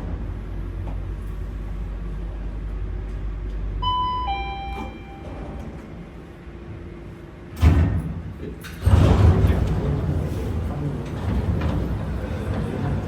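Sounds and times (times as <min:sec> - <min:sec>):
steady low rumble: 0:00.0 - 0:04.4
two-note electronic chime: 0:03.8 - 0:05.4.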